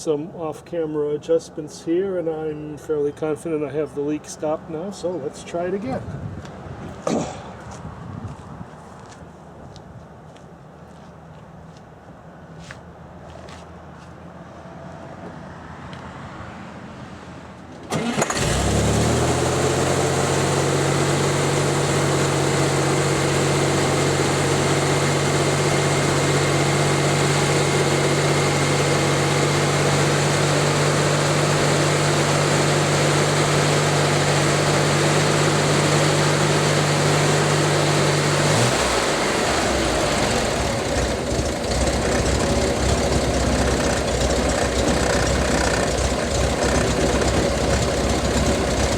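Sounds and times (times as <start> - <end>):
car engine starting and idling: 17.8 - 48.9.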